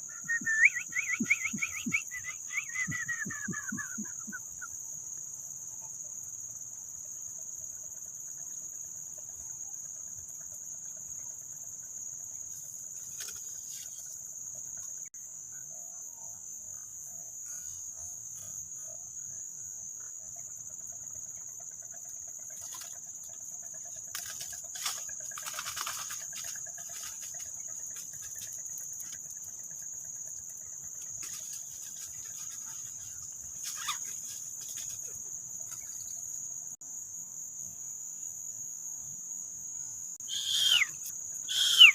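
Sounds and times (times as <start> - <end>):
insects chirring: 0.0 - 41.9
crackling rustles: 24.1 - 29.2, 31.1 - 35.8.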